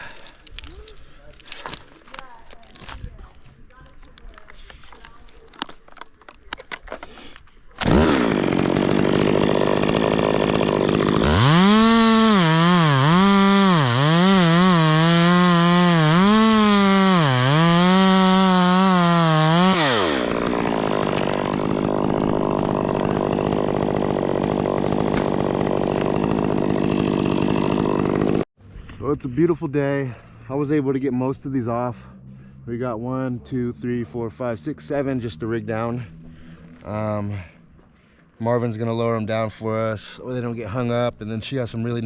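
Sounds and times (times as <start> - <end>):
chainsaw cutting wood: 7.8 - 28.5.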